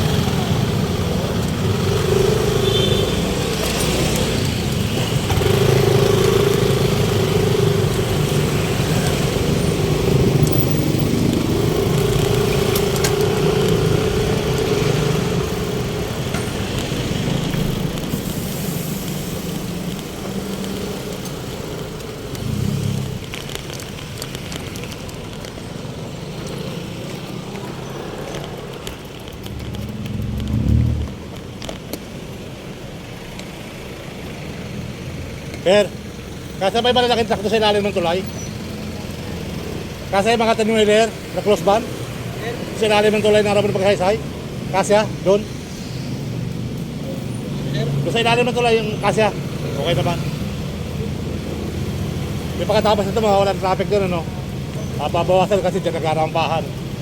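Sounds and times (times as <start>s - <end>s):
road traffic: 0.0s - 57.0s
vehicle engine running: 3.5s - 23.4s, 28.4s - 31.5s.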